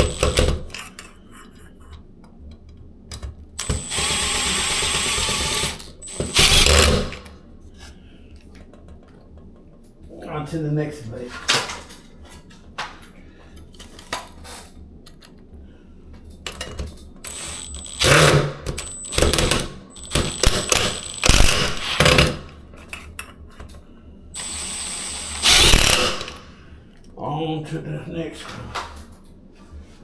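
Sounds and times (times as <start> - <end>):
ceiling fan whirring: 0.0 - 30.0
ceiling fan parts clicking and rattling: 7.2 - 17.3, 22.0 - 24.0
clattering bursts: 17.3 - 22.5.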